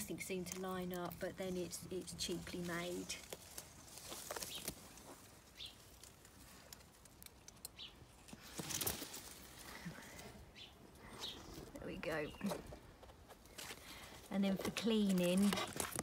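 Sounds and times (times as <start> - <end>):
rustle: 0.0 - 12.4.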